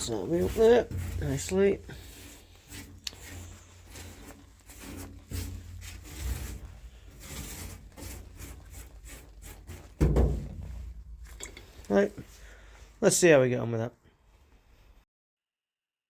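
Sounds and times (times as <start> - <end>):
brush rubbing on metal floor: 0.0 - 12.4.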